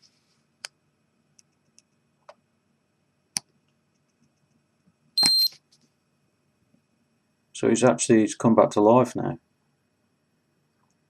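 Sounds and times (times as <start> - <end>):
electronic beep: 5.2 - 5.6.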